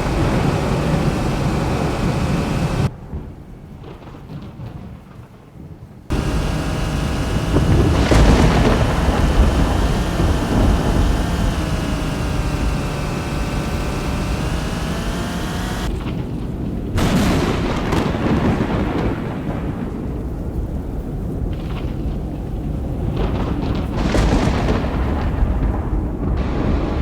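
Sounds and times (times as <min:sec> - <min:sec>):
steady droning tone: 0:00.0 - 0:02.9, 0:06.1 - 0:15.9.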